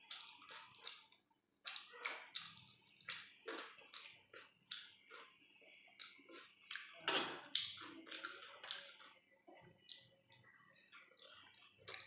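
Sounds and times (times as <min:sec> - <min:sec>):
fingers picking at food on plate: 0:00.0 - 0:09.2
person chewing wetly: 0:00.0 - 0:12.0.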